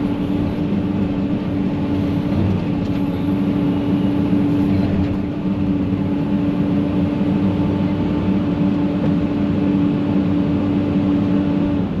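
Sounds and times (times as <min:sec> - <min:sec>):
diesel engine running under load: 0:00.0 - 0:12.0.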